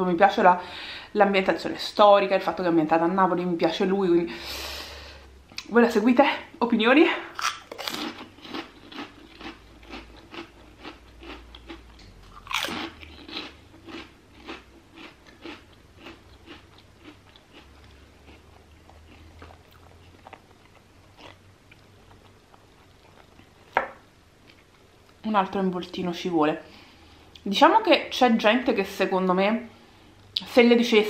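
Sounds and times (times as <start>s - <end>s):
crunching and chewing cracker: 7.4s - 23.8s.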